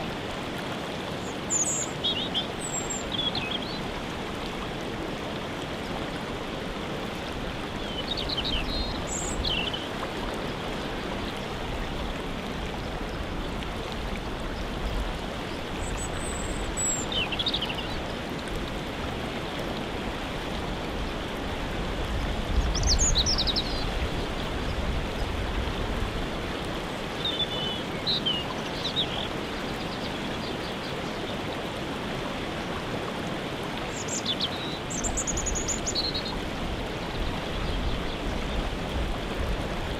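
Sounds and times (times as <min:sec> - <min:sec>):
waterfall rushing: 0:00.0 - 0:39.9
bird chirps and calls: 0:22.7 - 0:23.9.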